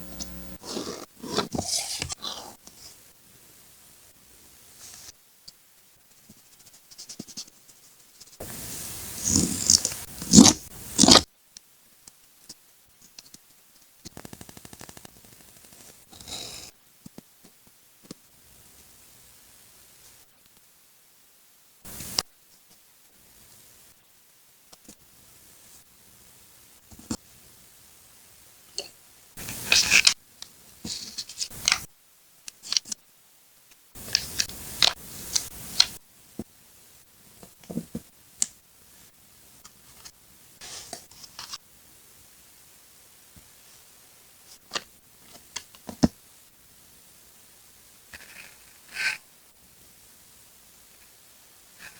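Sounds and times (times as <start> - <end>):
paper rubbing and scraping: 0.6 - 3.0, 8.3 - 11.2, 29.4 - 30.2, 30.8 - 31.8, 40.6 - 41.6
scissors snipping paper: 9.2 - 11.2.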